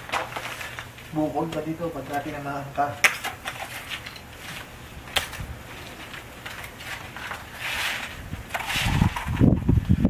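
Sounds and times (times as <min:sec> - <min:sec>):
crunching scrape: 0:00.0 - 0:01.0, 0:03.0 - 0:09.6.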